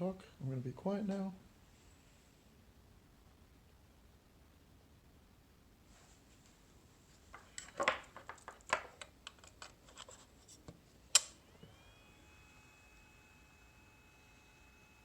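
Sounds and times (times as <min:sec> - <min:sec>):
irregular clicks and scratches: 0:07.2 - 0:10.8
small cooling fan: 0:09.8 - 0:15.0
faint high whine: 0:11.4 - 0:15.0.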